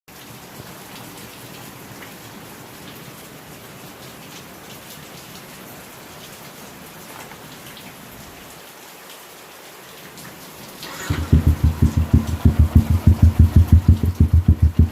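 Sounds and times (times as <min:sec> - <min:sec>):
rain hissing: 0:10.6 - 0:14.9.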